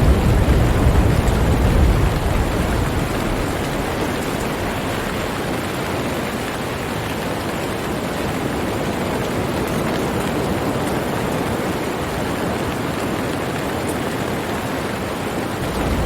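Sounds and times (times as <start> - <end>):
low rumble of thunder: 0.0 - 7.2, 15.5 - 16.0
steady rain hiss: 0.0 - 16.0.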